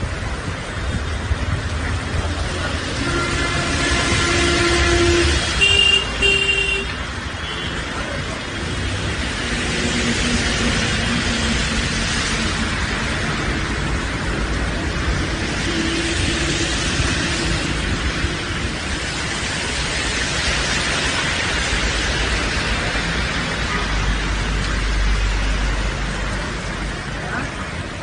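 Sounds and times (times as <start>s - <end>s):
road traffic noise: 0.0s - 28.0s
vehicle horns honking: 3.0s - 7.8s.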